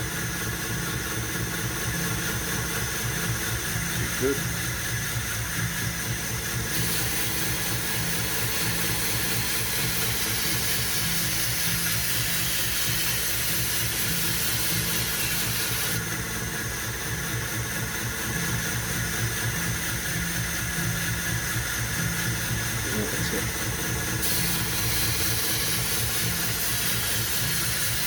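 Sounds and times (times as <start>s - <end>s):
belt grinder motor hum: 1.7s - 16.1s, 19.5s - 28.0s
steel grinding on belt: 6.7s - 16.0s, 24.1s - 28.0s.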